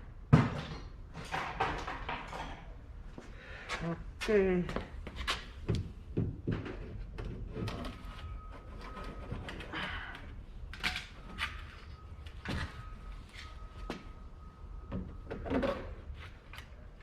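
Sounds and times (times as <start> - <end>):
hand tools and parts clattering: 0.4 - 2.8, 6.3 - 14.1.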